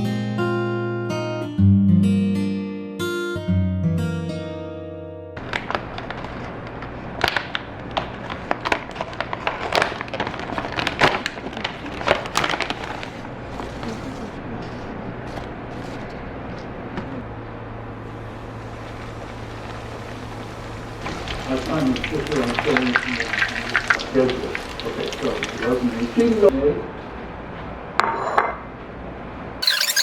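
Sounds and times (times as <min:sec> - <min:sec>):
food sizzling in a pan: 0:18.1 - 0:26.5.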